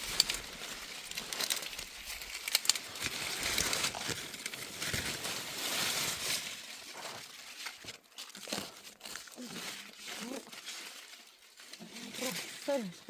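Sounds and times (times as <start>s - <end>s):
branches snapping: 0.0s - 6.5s
leaves and branches rustling: 0.0s - 13.0s.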